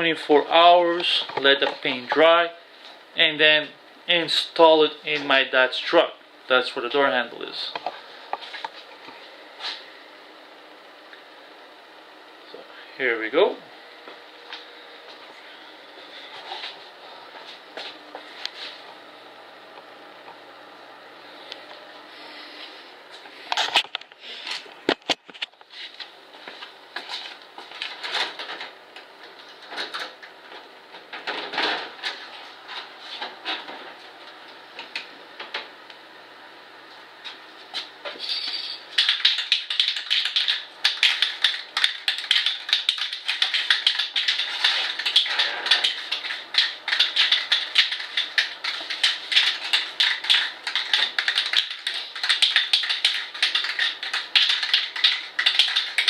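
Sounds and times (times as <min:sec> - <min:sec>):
spray can being shaken: 0:39.0 - 0:56.0.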